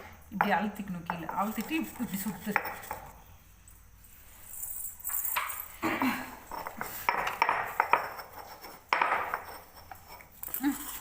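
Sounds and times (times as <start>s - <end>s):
grinding stone scraping and clinking: 6.5s - 11.0s.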